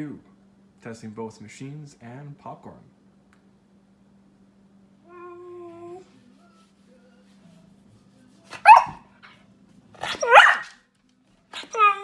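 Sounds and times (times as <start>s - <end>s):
dog whining: 5.1s - 6.0s, 8.5s - 9.0s, 10.0s - 10.7s, 11.6s - 12.0s
dog barking loudly: 8.6s - 9.0s, 10.0s - 10.8s.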